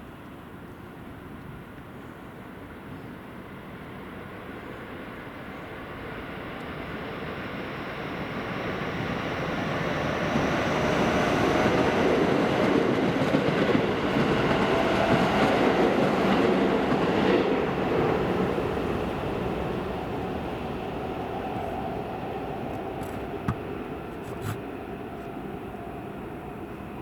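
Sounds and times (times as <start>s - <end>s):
electric train running past: 3.4s - 24.1s.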